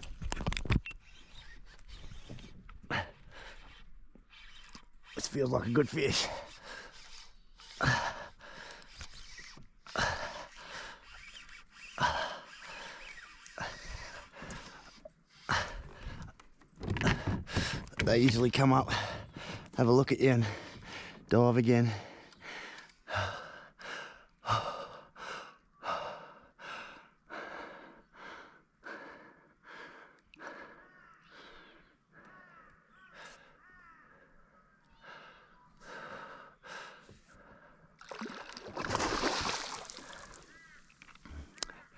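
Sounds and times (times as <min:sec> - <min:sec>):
person breathing hard: 0:06.5 - 0:09.0, 0:21.9 - 0:32.4, 0:35.0 - 0:38.0.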